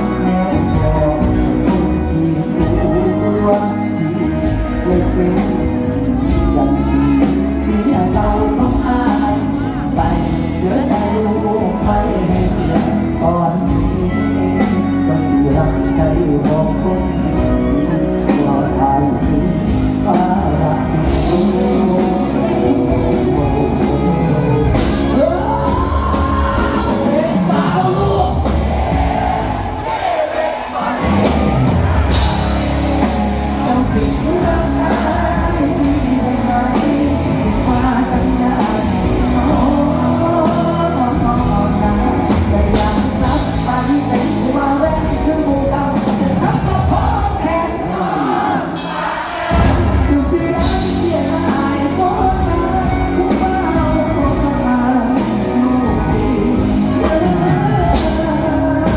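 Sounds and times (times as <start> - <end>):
live band music with singing: 0.0 - 58.9.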